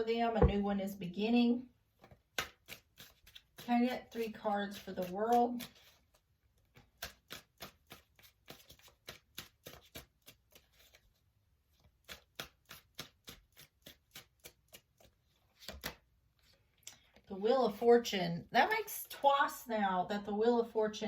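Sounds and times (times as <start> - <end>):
cards being shuffled: 2.0 - 3.7, 4.7 - 11.1, 11.8 - 17.1.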